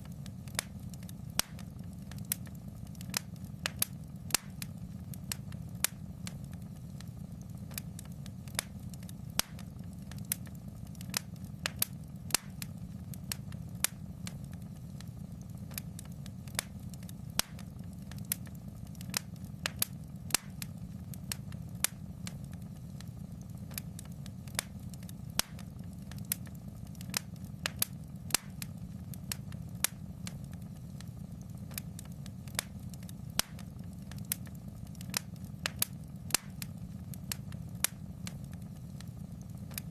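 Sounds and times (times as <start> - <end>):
fire crackling: 0.0 - 39.9.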